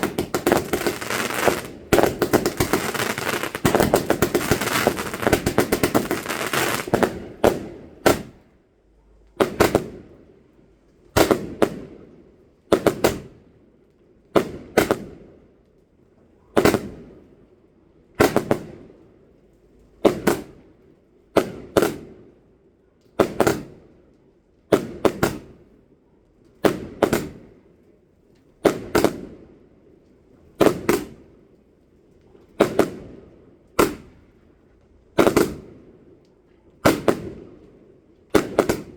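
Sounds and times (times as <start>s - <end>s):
fireworks crackle: 0.0s - 8.3s
fireworks bangs echoing: 0.0s - 8.4s, 38.4s - 38.9s.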